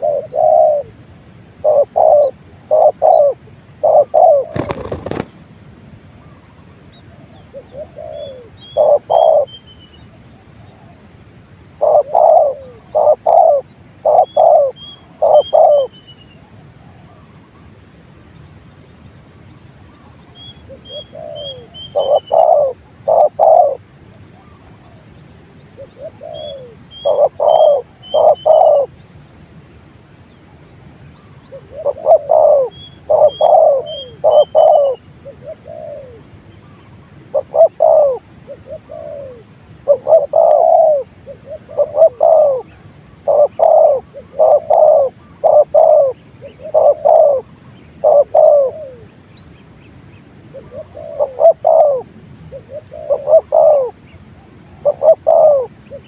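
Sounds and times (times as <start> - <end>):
dove cooing: 0.0 - 1.0, 1.6 - 5.4, 7.2 - 9.6, 11.8 - 16.0, 20.7 - 25.0, 25.8 - 29.0, 31.5 - 49.2, 50.5 - 56.0.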